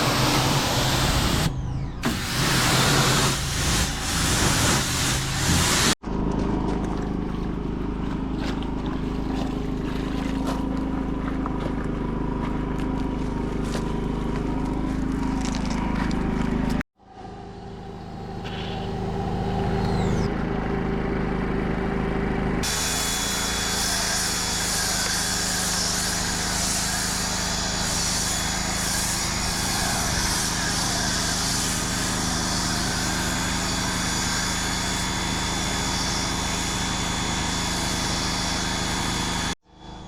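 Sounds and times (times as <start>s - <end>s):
pressure washer motor hum: 0.0s - 40.0s
water spray hiss: 2.1s - 6.0s.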